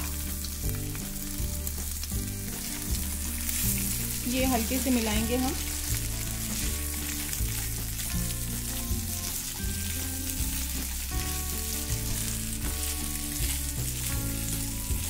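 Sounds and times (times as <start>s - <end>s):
food sizzling in hot oil: 0.0s - 15.0s
light background tune: 0.0s - 15.0s
spatula stirring in pan: 2.4s - 15.0s.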